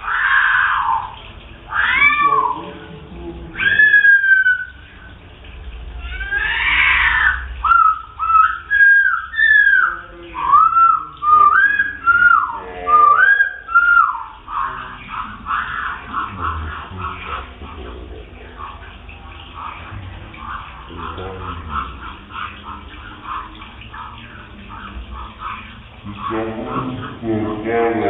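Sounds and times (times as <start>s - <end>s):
birds calling with arching notes: 0.0s - 28.0s
harsh hissing bird calls: 3.5s - 5.2s, 6.0s - 18.8s.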